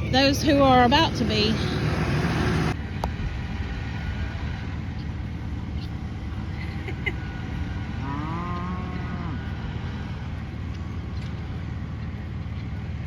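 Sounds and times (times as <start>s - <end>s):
engine rumbling: 0.0s - 13.0s
cow mooing: 8.0s - 9.5s.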